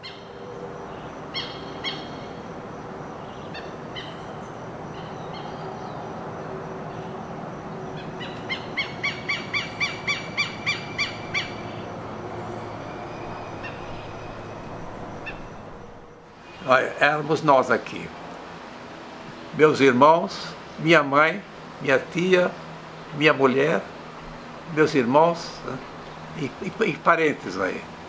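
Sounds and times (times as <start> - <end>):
bird chirps: 3.2 - 6.1, 8.0 - 16.7
steady background rush: 3.6 - 17.6.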